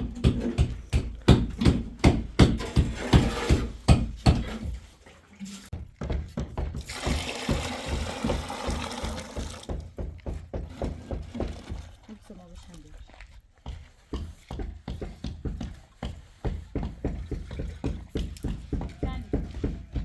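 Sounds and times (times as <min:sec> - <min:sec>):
sharp knocks: 0:00.0 - 0:04.7
water running: 0:06.8 - 0:09.8.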